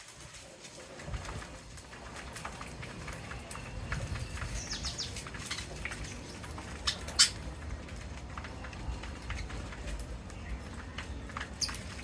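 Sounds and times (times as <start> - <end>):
parrots chirping and calling: 4.1 - 7.6, 11.5 - 12.0.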